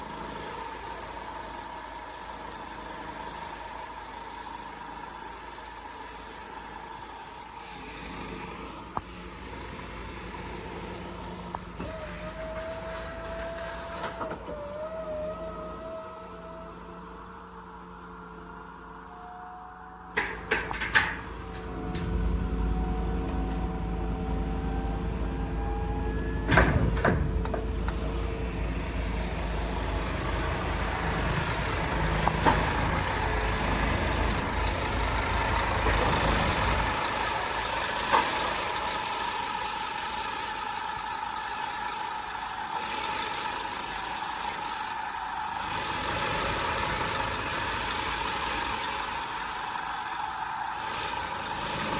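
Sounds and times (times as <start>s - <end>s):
truck engine low rumble: 0.0s - 51.9s
loud clunk: 26.4s - 28.0s
steady whine with hiss: 28.7s - 51.9s.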